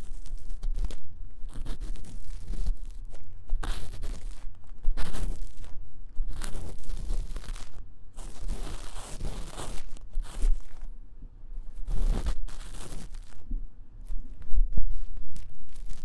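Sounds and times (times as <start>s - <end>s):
tool scratching silicone ear: 8.2s - 10.6s, 11.9s - 13.4s.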